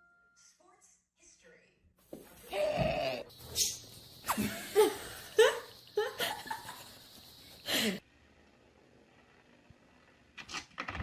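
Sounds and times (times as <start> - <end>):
person laughing: 4.3 - 7.0.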